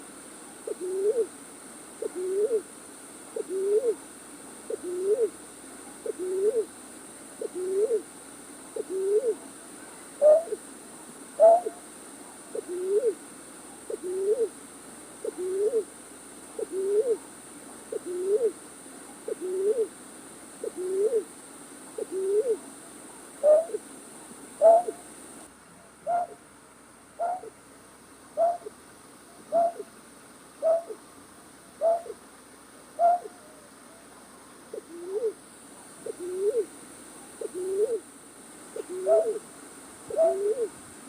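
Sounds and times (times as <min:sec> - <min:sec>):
night bird hooting: 0:00.6 - 0:01.3, 0:02.0 - 0:02.7, 0:03.3 - 0:04.0, 0:04.7 - 0:05.4, 0:06.0 - 0:06.7, 0:07.4 - 0:08.1, 0:08.8 - 0:09.4, 0:10.2 - 0:10.6, 0:11.4 - 0:11.9, 0:12.5 - 0:13.2, 0:13.8 - 0:14.6, 0:15.2 - 0:15.9, 0:16.6 - 0:17.2, 0:17.9 - 0:18.6, 0:19.3 - 0:19.9, 0:20.6 - 0:21.3, 0:22.0 - 0:22.6, 0:23.4 - 0:23.8, 0:24.6 - 0:25.1, 0:26.0 - 0:26.4, 0:27.2 - 0:27.6, 0:28.3 - 0:28.8, 0:29.4 - 0:29.9, 0:30.6 - 0:31.1, 0:31.8 - 0:32.2, 0:33.0 - 0:33.6, 0:34.7 - 0:35.4, 0:36.0 - 0:38.1, 0:38.8 - 0:39.5, 0:40.1 - 0:40.8.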